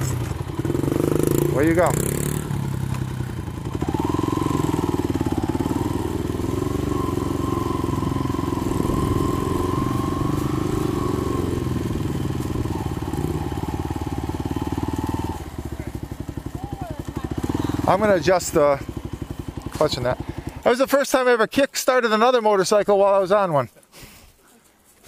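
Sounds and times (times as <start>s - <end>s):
dirt bike engine running: 0.0s - 21.8s.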